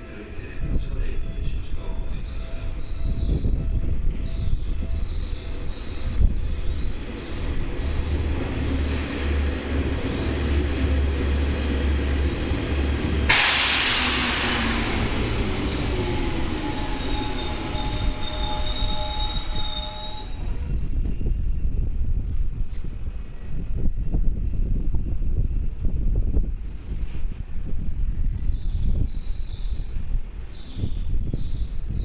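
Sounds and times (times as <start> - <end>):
electric train rumbling: 0.0 - 32.0
train wheels squealing: 1.3 - 7.6, 13.3 - 21.6
air blast hissing: 13.2 - 19.9.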